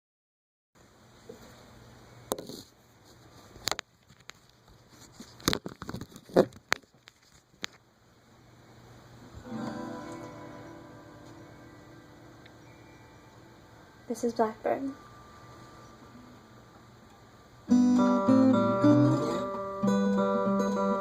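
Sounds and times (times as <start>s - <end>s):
guitar being handled: 9.4s - 11.7s, 17.7s - 21.0s
guitar chord strummed: 9.4s - 14.0s, 17.7s - 21.0s.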